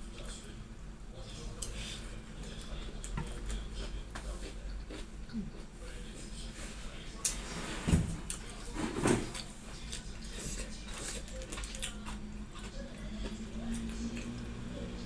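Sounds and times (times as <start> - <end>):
chewing: 1.5 - 6.2, 9.3 - 15.0.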